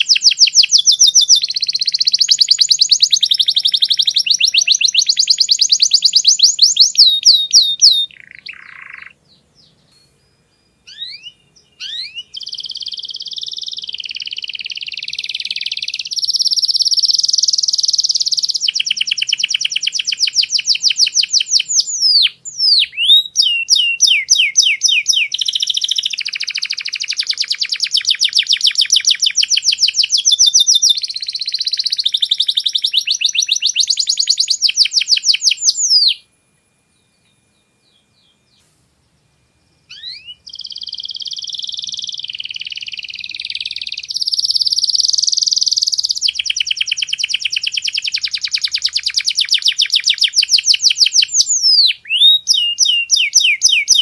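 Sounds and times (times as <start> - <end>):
canary singing trills: 0.0 - 36.3, 39.8 - 54.0.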